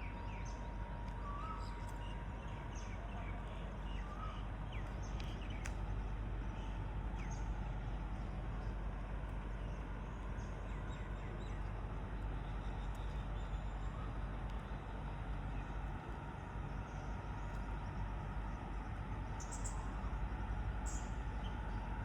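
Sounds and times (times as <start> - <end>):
whistled bird notes: 1.2 - 2.2.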